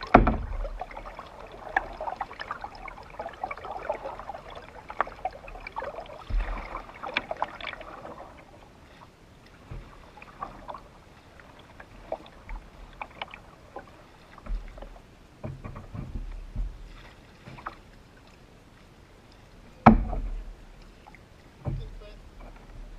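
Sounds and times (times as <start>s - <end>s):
dull low thumps: 0.0s - 0.9s, 14.4s - 17.0s, 19.8s - 20.7s
paddle splashing water: 0.0s - 22.9s.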